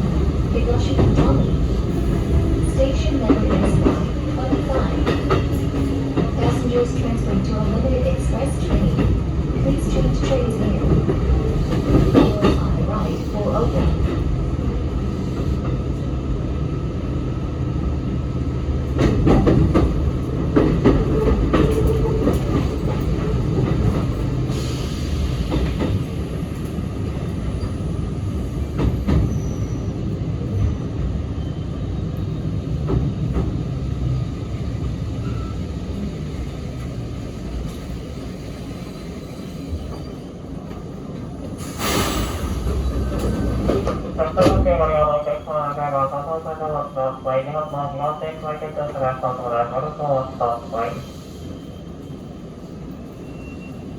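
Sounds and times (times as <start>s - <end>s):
rail joint clicks: 0.0s - 14.4s, 18.8s - 29.5s, 32.2s - 45.2s
train wheels and motors rumbling: 0.0s - 46.5s.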